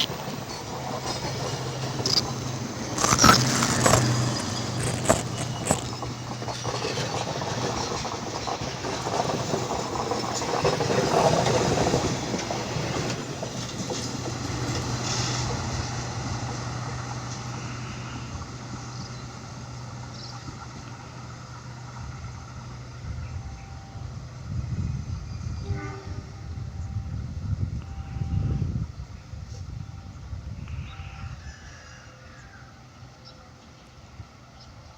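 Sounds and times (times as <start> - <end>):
low engine hum: 0.0 - 8.5, 12.3 - 25.6
diesel train passing: 0.0 - 34.9.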